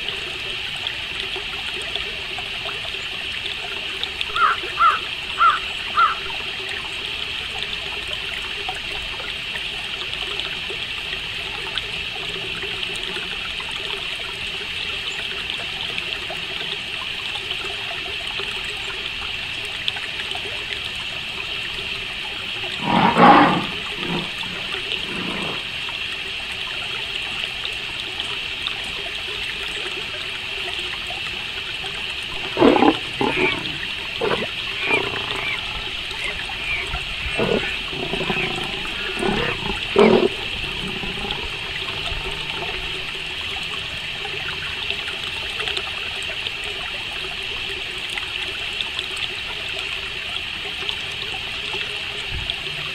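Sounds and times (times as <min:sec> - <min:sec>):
harsh bird calls: 0:04.4 - 0:06.3, 0:22.8 - 0:25.6, 0:32.3 - 0:40.4
crickets chirring: 0:32.4 - 0:41.3.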